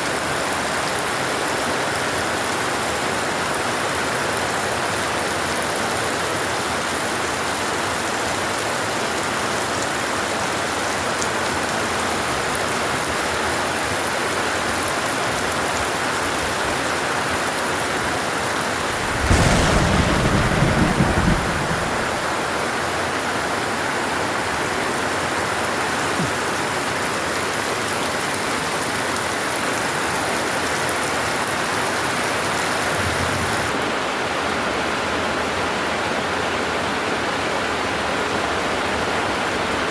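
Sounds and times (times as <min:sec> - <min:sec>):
heavy rain downpour: 0:00.0 - 0:39.9
thunder rumble: 0:18.5 - 0:23.9, 0:30.7 - 0:33.9.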